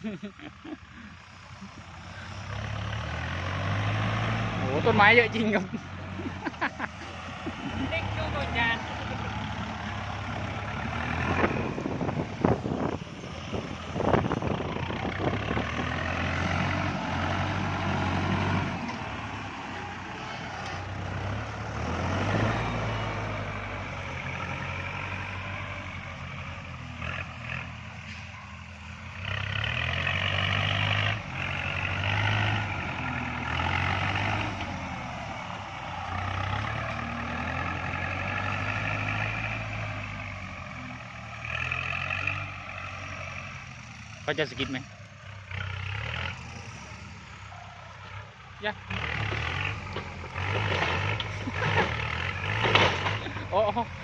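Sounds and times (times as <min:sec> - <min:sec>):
tractor diesel engine under load: 0:00.0 - 0:54.0
sharp cracks and knocks: 0:49.4 - 0:53.3.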